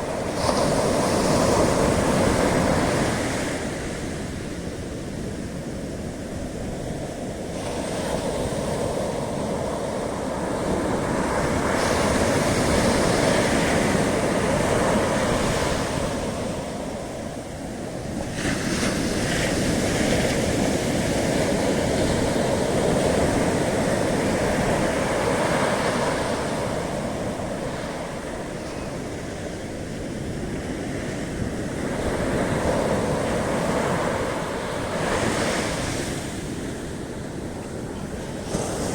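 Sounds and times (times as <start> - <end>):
ocean surf breaking on beach: 0.0 - 38.9.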